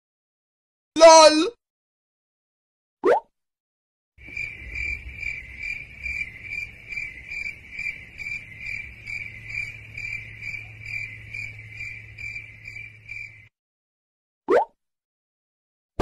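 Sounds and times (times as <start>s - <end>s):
crickets chirping: 4.2s - 13.5s.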